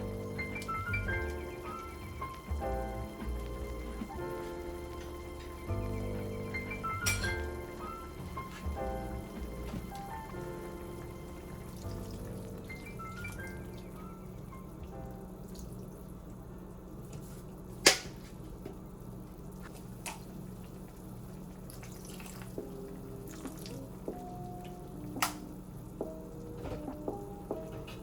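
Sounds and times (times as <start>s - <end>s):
kitchen sounds: 0.0s - 14.9s
soft background music: 0.0s - 16.2s, 21.4s - 28.0s.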